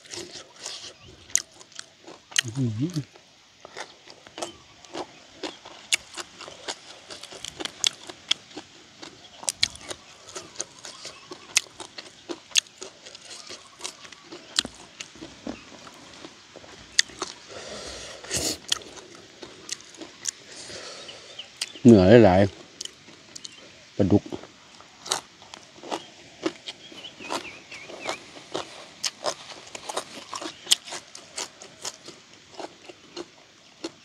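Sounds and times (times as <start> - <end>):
person chewing food: 0.0 - 21.8, 22.5 - 34.0.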